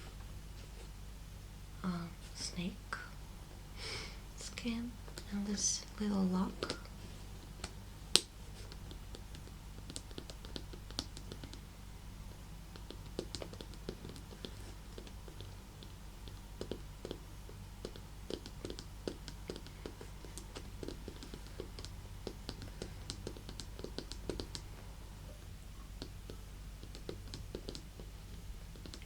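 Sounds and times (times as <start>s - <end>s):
fingernails tapping on leather: 7.6s - 11.6s, 12.7s - 17.2s, 17.8s - 24.7s, 26.0s - 28.1s, 28.7s - 29.0s.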